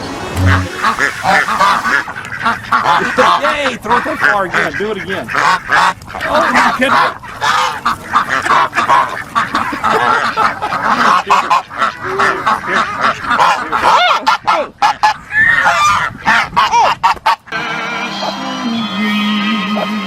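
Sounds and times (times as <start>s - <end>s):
music: 0.0s - 1.8s, 17.6s - 20.0s
geese honking: 0.0s - 20.0s.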